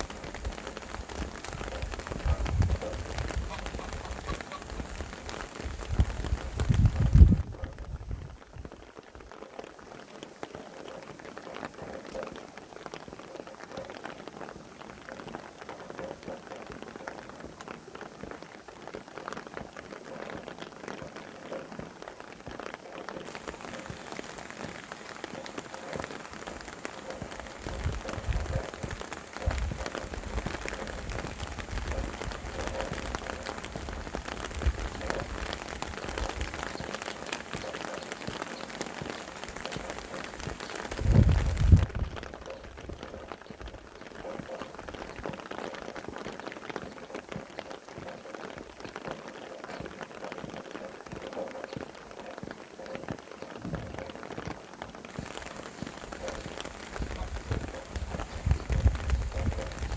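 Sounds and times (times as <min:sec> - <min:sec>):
wind gusts rumbling: 0:00.0 - 0:08.9, 0:23.2 - 0:44.0, 0:53.6 - 0:59.9
raindrops striking a surface: 0:00.0 - 0:59.9.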